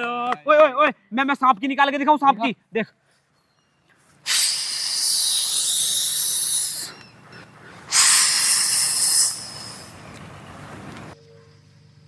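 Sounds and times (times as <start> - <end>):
person hissing: 4.2 - 7.0, 7.9 - 10.0.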